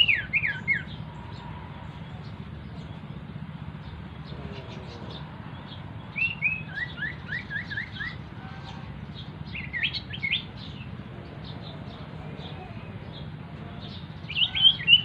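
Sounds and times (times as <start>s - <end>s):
songbird chirping: 0.0s - 15.0s
steady low hum: 0.0s - 15.0s.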